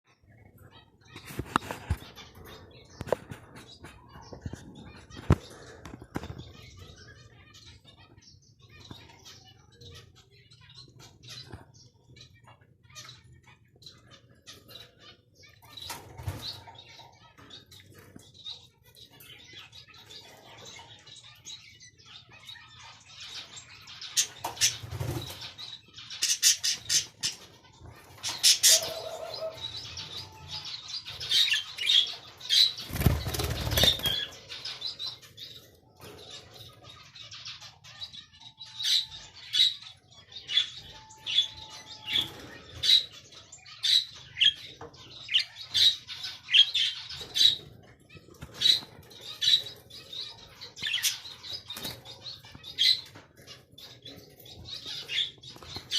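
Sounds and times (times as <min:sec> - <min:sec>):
cockatiels chirping: 0:00.6 - 0:55.9
wings flapping: 0:32.9 - 0:34.2.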